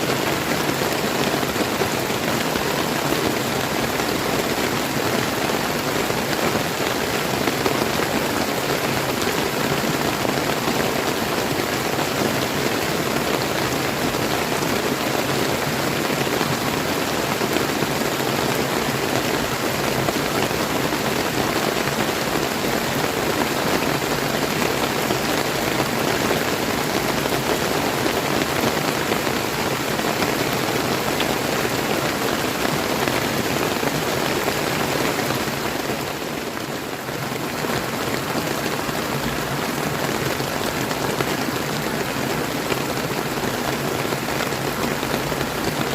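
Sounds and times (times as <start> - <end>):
river stream flowing: 0.0 - 45.9
steady rain falling: 0.0 - 45.9.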